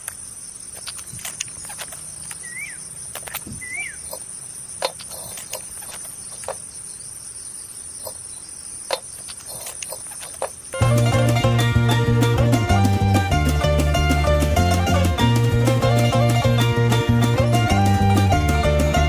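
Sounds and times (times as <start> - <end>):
sharp clicks: 0.0 - 6.7, 8.9 - 10.7
high-pitched insect trill: 0.0 - 11.4
bird chirps: 0.3 - 10.8.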